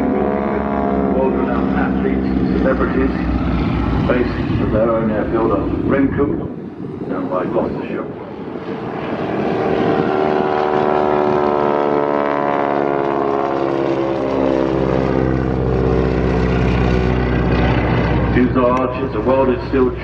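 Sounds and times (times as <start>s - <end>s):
biplane engine flying past: 0.0s - 20.0s.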